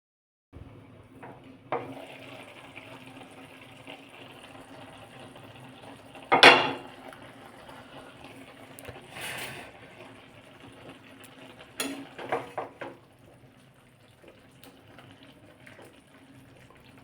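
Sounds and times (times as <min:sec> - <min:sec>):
metal utensils knocking on pot: 0:06.3 - 0:06.8.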